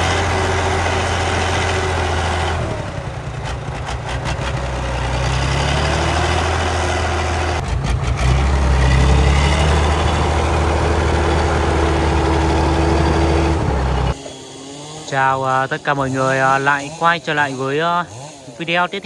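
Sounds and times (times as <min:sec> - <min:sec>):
heavy truck engine humming: 0:00.0 - 0:14.2.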